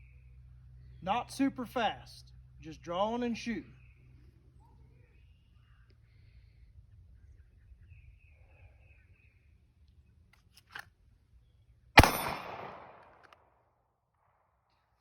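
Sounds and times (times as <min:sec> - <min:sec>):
pistol shot: 0:12.0 - 0:13.4.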